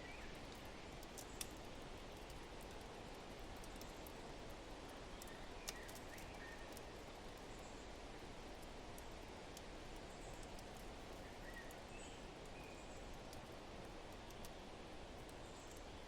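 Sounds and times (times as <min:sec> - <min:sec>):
fireplace crackling and popping: 0:05.1 - 0:07.4, 0:13.3 - 0:14.6.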